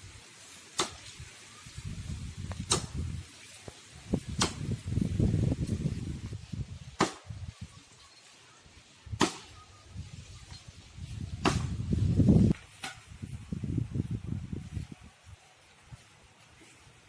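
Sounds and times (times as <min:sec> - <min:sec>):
chopping blows on palm trunk: 0:02.5 - 0:03.0, 0:04.3 - 0:04.8, 0:07.0 - 0:07.3, 0:09.2 - 0:09.5, 0:11.4 - 0:11.8.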